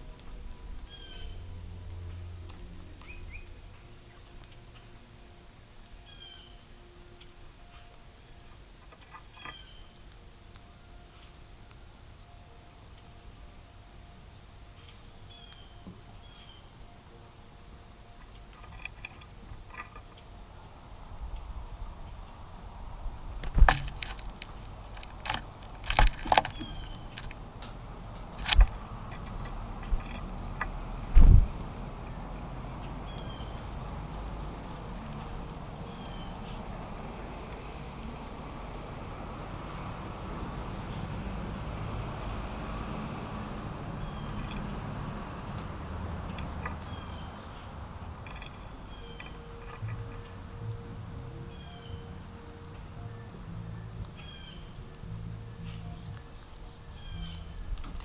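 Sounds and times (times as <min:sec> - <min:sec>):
steady low rumble: 0:00.0 - 0:08.9, 0:09.7 - 0:58.0
faint bird chirps: 0:00.8 - 0:01.5, 0:06.0 - 0:08.4, 0:09.2 - 0:10.0, 0:12.8 - 0:16.8, 0:51.5 - 0:52.2
high bird chirp: 0:00.8 - 0:01.5, 0:03.0 - 0:05.0, 0:06.0 - 0:07.9, 0:09.2 - 0:10.0, 0:13.8 - 0:16.7, 0:26.5 - 0:27.2, 0:32.8 - 0:36.8, 0:46.7 - 0:50.4, 0:51.3 - 0:58.0
birds pecking at feeder: 0:18.2 - 0:58.0.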